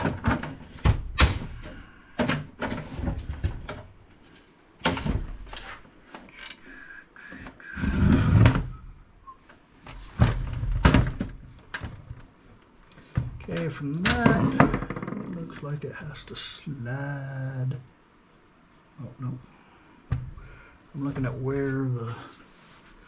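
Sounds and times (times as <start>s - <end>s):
computer case knocking and rattling: 0.0s - 4.0s, 4.8s - 5.5s, 10.1s - 12.2s.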